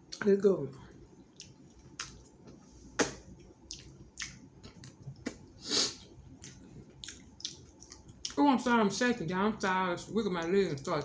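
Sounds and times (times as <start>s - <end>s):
wet chewing and mouth smacking: 1.3s - 8.4s.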